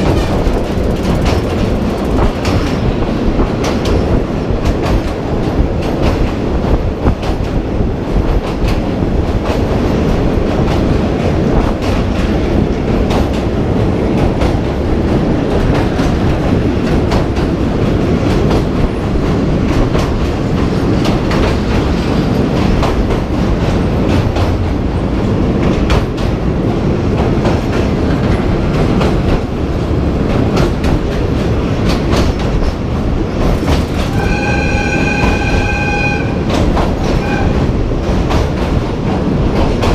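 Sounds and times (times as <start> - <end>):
wheels clacking over rail joints: 0.0 - 7.6, 8.2 - 39.9
train rumbling along track: 0.0 - 39.9
train horn: 34.1 - 37.7.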